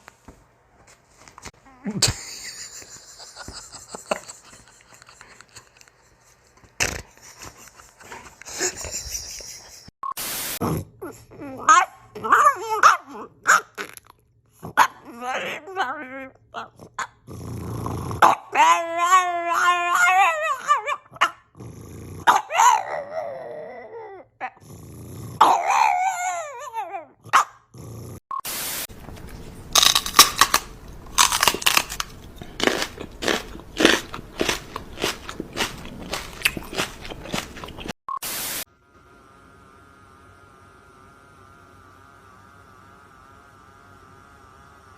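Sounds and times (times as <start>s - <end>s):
dog whining and howling: 11.0s - 13.3s, 14.8s - 17.1s, 18.2s - 21.4s, 22.2s - 24.6s, 25.4s - 27.4s.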